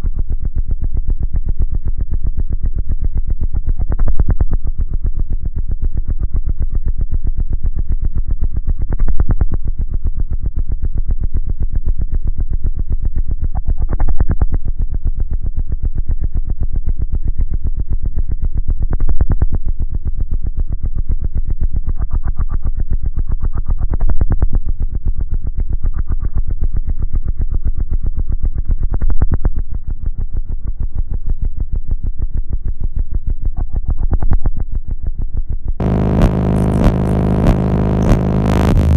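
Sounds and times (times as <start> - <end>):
bass-heavy synthesizer music: 35.8 - 38.9.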